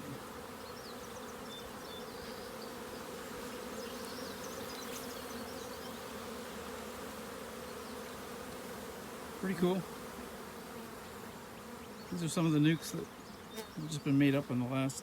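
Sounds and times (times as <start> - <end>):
honey bees humming: 0.0 - 15.0.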